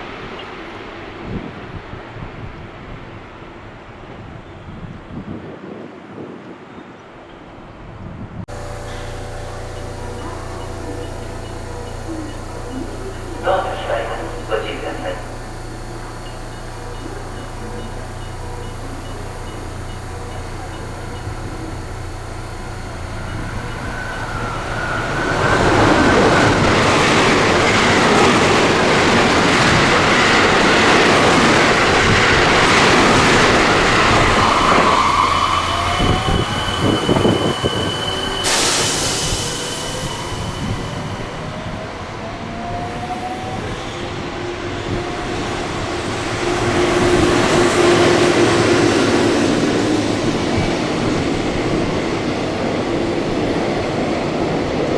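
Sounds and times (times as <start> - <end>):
train wheels rumbling on rails: 6.3 - 54.9
high squeal: 8.5 - 28.3, 32.2 - 42.1
rising whine: 8.5 - 54.9.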